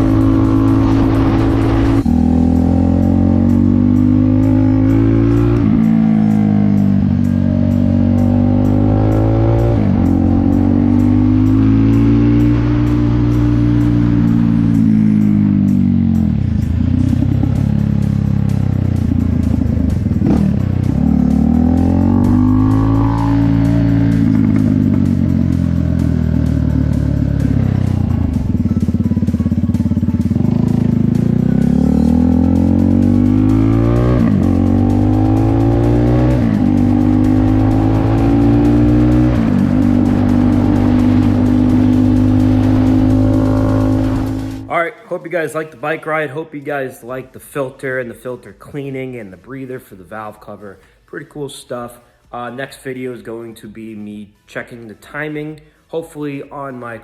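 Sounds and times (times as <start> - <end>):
motorcycle engine accelerating: 0.0 - 44.7.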